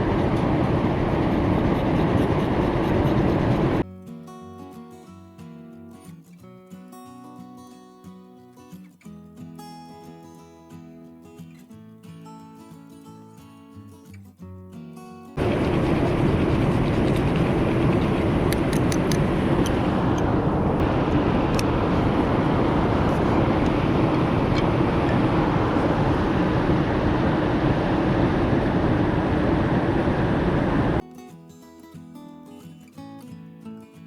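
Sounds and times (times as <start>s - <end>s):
loud rushing noise: 0.0s - 3.8s, 15.4s - 31.0s
sharp clicks: 17.1s - 19.8s.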